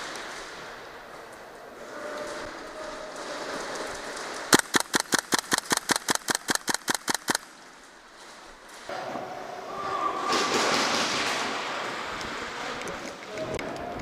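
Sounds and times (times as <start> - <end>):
airsoft gun firing rapidly: 4.5 - 7.6.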